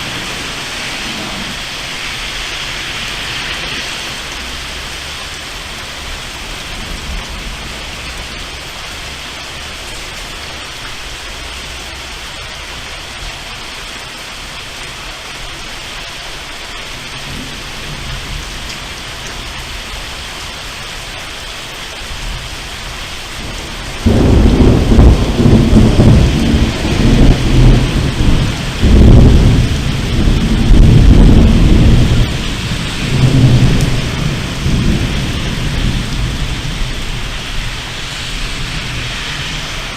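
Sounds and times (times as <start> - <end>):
thunder crack and rumble: 0.0 - 5.2, 6.0 - 9.2, 17.0 - 20.3, 22.0 - 39.9
heavy rain: 0.0 - 39.9.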